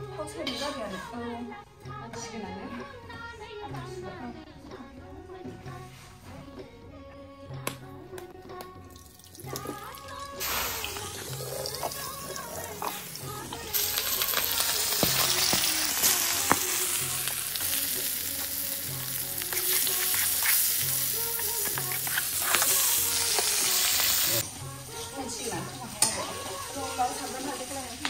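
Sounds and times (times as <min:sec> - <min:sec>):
larvae sizzling in hot oil: 0:09.5 - 0:28.0
metal spatula scraping wok: 0:19.4 - 0:24.3.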